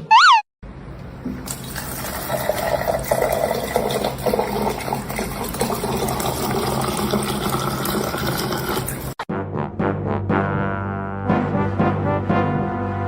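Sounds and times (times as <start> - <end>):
water rushing: 1.1 - 9.2.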